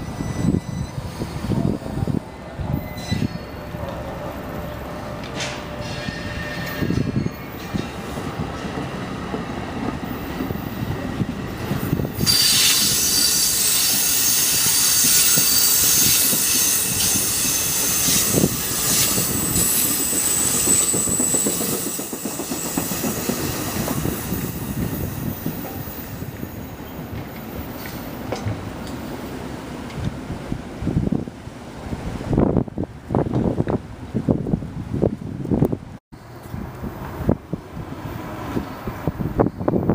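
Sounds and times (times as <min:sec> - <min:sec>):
wheels squealing on rails: 0:00.0 - 0:08.2, 0:11.6 - 0:28.5, 0:38.3 - 0:39.9
train passing: 0:00.0 - 0:39.9
clacking over rail joints: 0:27.1 - 0:29.0.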